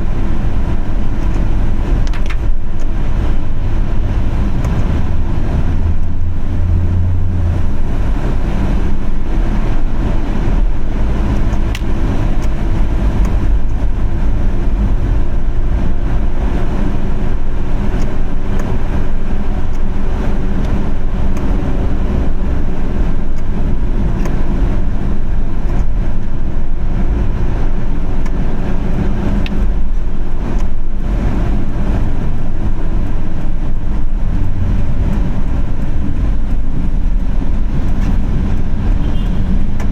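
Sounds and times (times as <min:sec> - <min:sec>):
car engine and tyres rumbling: 0:00.0 - 0:39.9
light ticks: 0:11.3 - 0:13.8, 0:17.9 - 0:18.9, 0:19.6 - 0:21.6, 0:23.3 - 0:24.4, 0:30.5 - 0:39.9.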